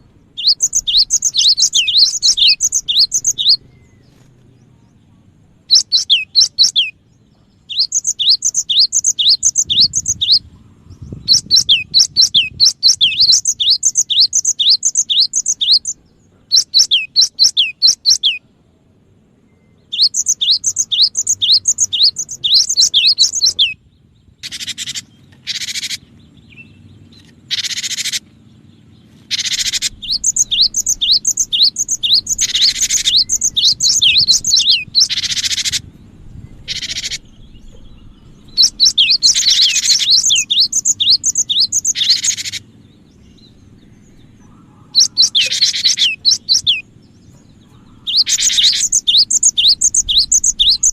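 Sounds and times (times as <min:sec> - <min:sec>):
harsh buzzy bird notes: 0:00.0 - 0:04.1, 0:19.8 - 0:50.9
bird chirping: 0:00.0 - 0:50.9.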